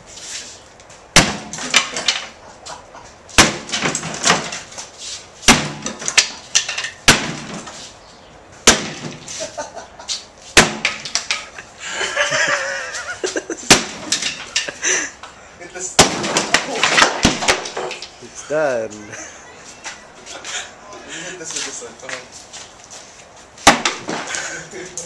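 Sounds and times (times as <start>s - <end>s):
sledgehammer strikes: 1.1s - 2.4s, 3.4s - 4.7s, 5.4s - 7.8s, 8.6s - 9.3s, 10.5s - 11.5s, 13.6s - 14.7s, 15.9s - 18.0s, 23.6s - 24.4s
clatter of breaking pieces: 1.4s - 2.4s, 3.4s - 4.7s, 13.7s - 14.8s, 16.0s - 18.1s.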